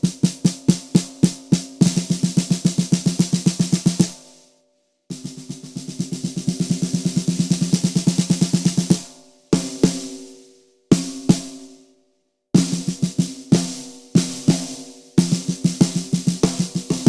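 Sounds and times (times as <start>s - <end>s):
snare drum strokes: 5.1s - 11.7s, 12.6s - 17.0s.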